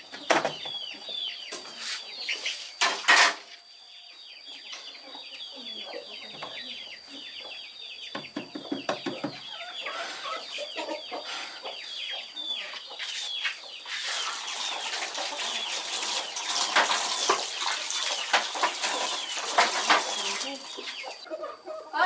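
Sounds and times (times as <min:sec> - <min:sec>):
chickens clucking: 0:00.0 - 0:22.0
rushing hiss with knocks: 0:16.0 - 0:21.0.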